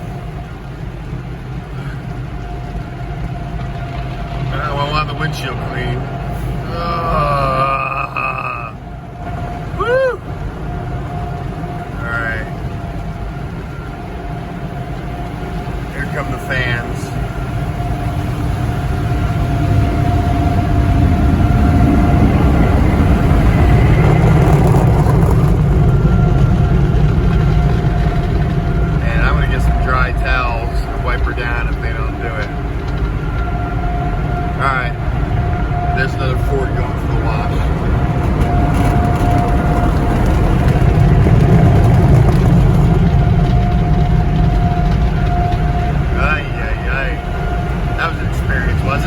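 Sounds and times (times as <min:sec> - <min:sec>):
faint steady whine: 0:00.0 - 0:49.0
drying blowers blasting air: 0:15.4 - 0:49.0.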